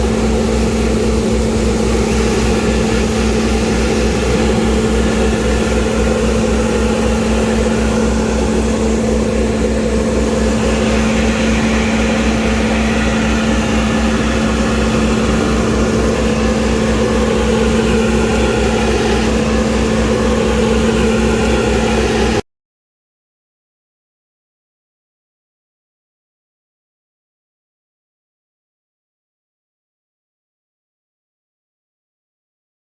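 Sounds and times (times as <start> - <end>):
vacuum loader truck running: 0.0 - 22.4.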